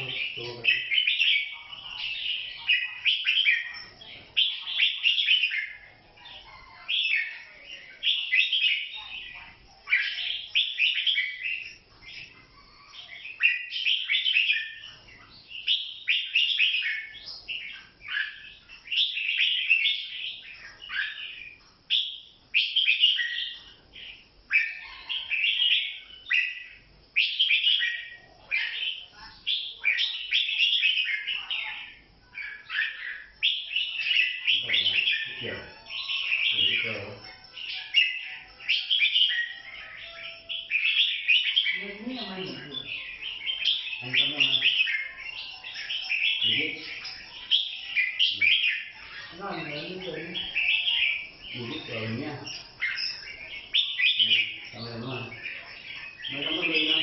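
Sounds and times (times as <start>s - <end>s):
bird singing warbling phrases: 0.0s - 57.0s.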